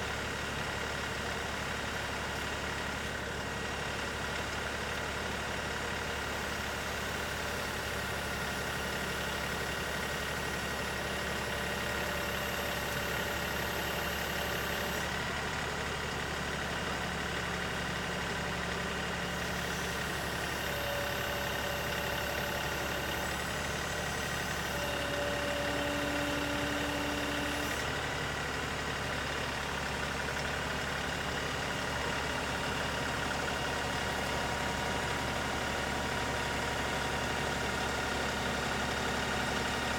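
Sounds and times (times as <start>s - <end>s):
tractor diesel engine running: 0.0s - 39.9s
short whining tones: 19.3s - 28.0s.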